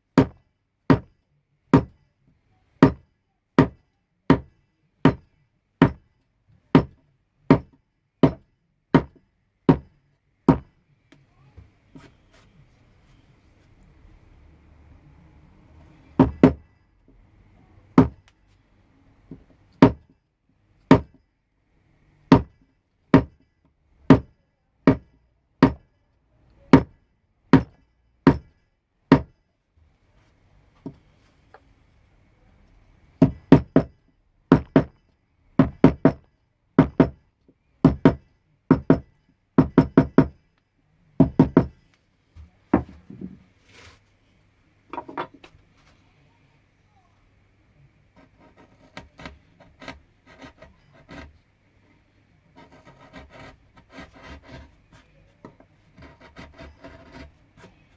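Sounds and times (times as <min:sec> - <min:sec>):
mallet striking chisel into wood: 0:00.2 - 0:01.1, 0:01.8 - 0:02.0, 0:02.8 - 0:03.0, 0:03.6 - 0:06.1, 0:06.7 - 0:09.9, 0:10.5 - 0:10.7, 0:16.2 - 0:16.6, 0:18.0 - 0:18.2, 0:19.3 - 0:20.0, 0:20.9 - 0:21.2, 0:22.3 - 0:23.4, 0:24.1 - 0:25.8, 0:26.7 - 0:29.4, 0:33.2 - 0:35.0, 0:35.6 - 0:37.2, 0:37.8 - 0:40.4, 0:41.2 - 0:41.8.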